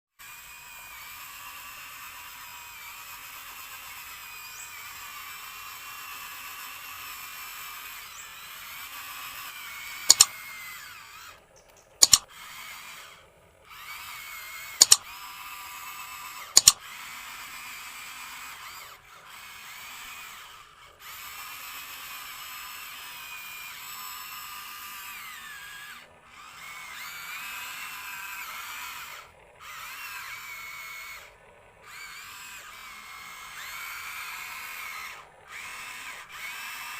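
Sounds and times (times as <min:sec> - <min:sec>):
small electric motors whining: 0:00.1 - 0:36.9
loud sharp clicks: 0:10.1 - 0:10.4, 0:11.6 - 0:12.3, 0:14.8 - 0:15.0, 0:16.6 - 0:16.8.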